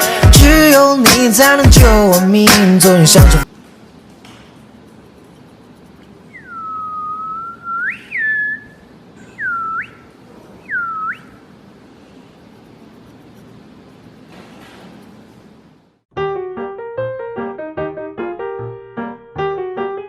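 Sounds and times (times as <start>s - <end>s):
whistling calls sweeping up: 6.3s - 11.4s.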